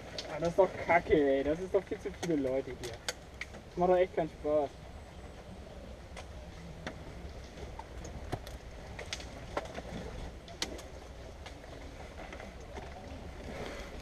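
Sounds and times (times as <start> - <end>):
sharp clicks and snaps: 1.7 - 3.6.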